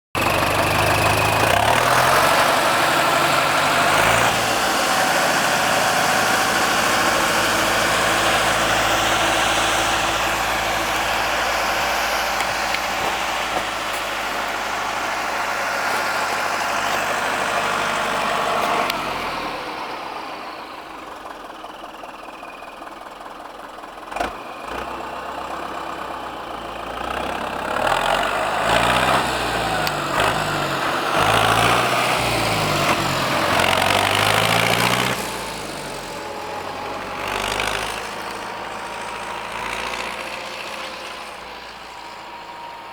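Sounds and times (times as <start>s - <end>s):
tractor diesel engine running: 0.1s - 42.9s.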